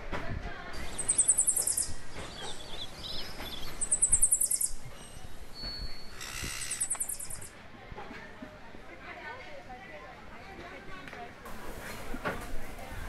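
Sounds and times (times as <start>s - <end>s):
bird rapid high trill: 0.8s - 4.8s, 6.1s - 7.5s
soft bird chirps: 0.8s - 7.5s.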